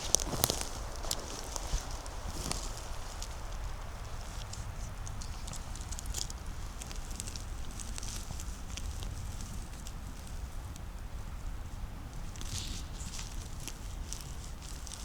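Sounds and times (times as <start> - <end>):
footsteps crunching through leaves: 0.0 - 9.6.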